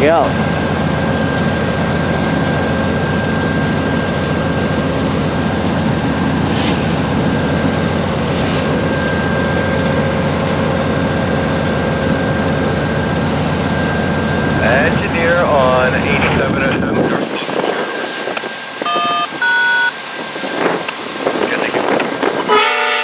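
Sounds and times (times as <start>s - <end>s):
constant whine: 0.0s - 22.8s
diesel locomotive running: 0.0s - 23.0s.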